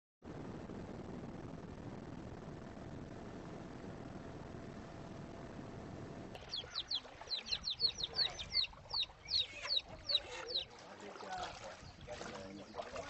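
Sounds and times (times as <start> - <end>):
low steady rushing noise: 0.3 - 7.0
birds chirping: 6.4 - 13.0.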